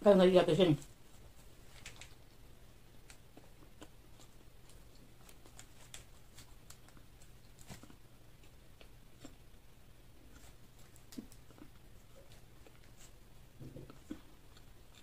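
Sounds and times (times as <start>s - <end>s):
low steady hum: 0.0s - 15.0s
chewing fries: 1.5s - 15.0s.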